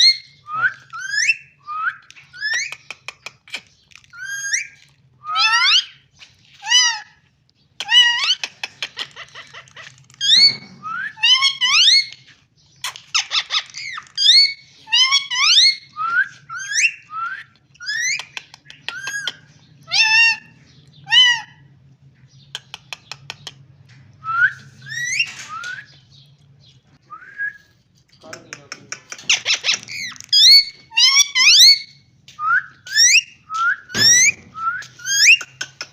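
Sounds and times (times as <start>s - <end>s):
parrot whistling and squawking: 0.0s - 2.8s, 4.1s - 6.0s, 6.6s - 7.2s, 7.8s - 12.2s, 12.8s - 21.6s, 24.3s - 25.9s, 29.2s - 35.7s.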